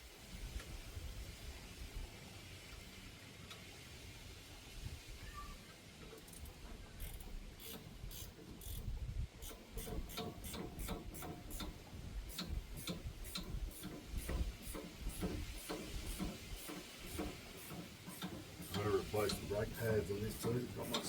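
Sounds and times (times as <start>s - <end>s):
ratchet wrench clicking: 6.2s - 21.0s.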